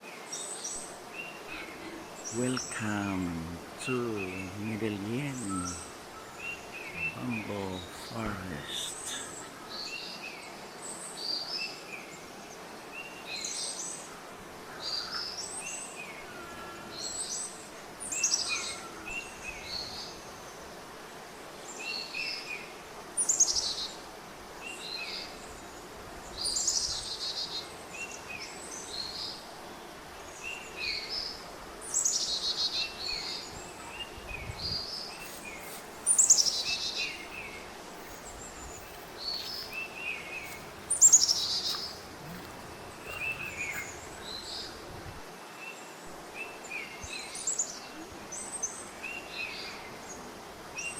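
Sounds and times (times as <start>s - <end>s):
outdoor background hiss: 0.0s - 50.9s
birds chirping: 0.3s - 11.4s, 30.3s - 45.2s
high descending bird calls: 35.2s - 44.8s.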